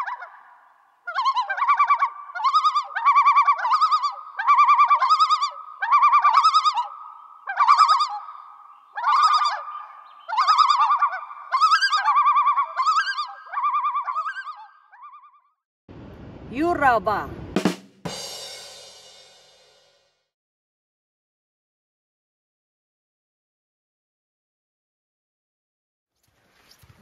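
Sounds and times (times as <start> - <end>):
bird warbling trill: 1.1 - 15.5.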